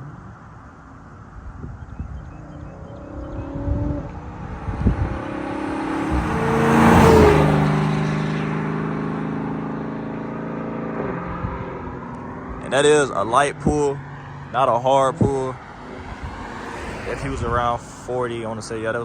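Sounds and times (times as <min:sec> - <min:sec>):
car engine accelerating: 0:00.0 - 0:18.8.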